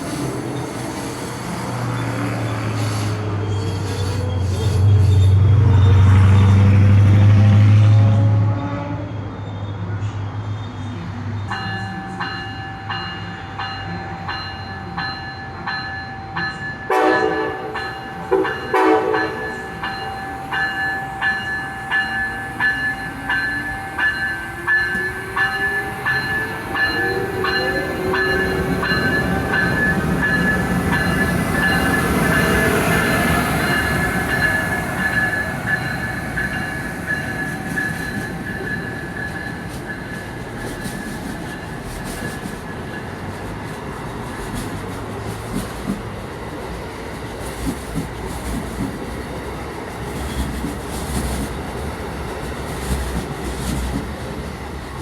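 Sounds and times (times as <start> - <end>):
train horn blasts: 7.3 - 9.1, 16.9 - 19.7, 26.7 - 30.4
electric locomotive motor whine: 16.9 - 39.2
clicking of train wheels: 21.9 - 55.0.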